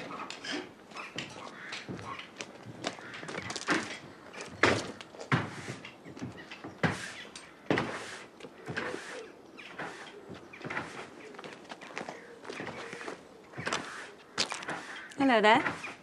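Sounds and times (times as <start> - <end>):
clunks and bangs: 0.0 - 8.0, 9.8 - 11.1.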